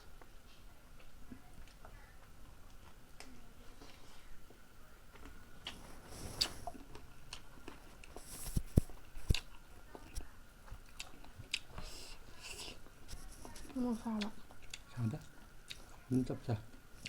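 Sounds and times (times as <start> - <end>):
person chewing: 5.1 - 16.0.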